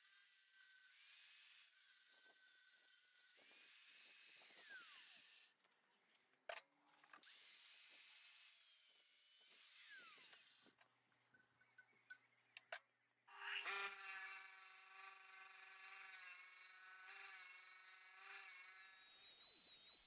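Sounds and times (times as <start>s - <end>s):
grinder grinding steel: 8.0s - 10.8s, 13.3s - 20.0s.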